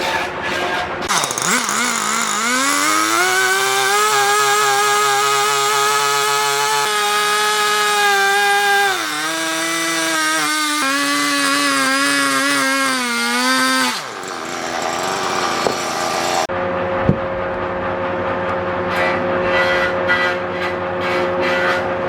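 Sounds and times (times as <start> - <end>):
chainsaw cutting log: 1.1 - 16.5.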